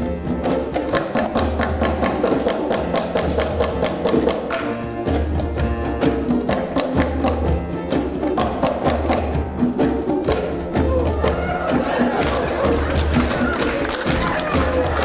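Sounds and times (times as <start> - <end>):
wood block percussion: 0.0 - 15.0
choir singing: 11.0 - 15.0.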